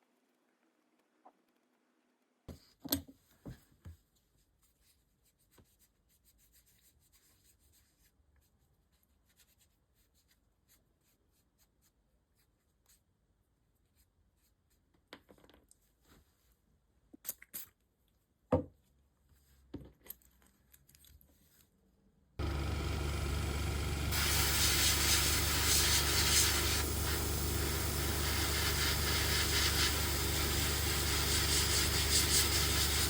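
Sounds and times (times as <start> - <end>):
faint scratching and rubbing: 4.1 - 13.1, 24.1 - 33.0.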